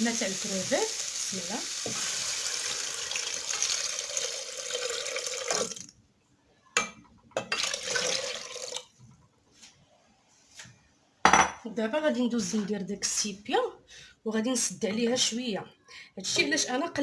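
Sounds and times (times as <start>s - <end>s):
liquid pouring into pot: 0.9s - 5.9s, 7.6s - 8.9s.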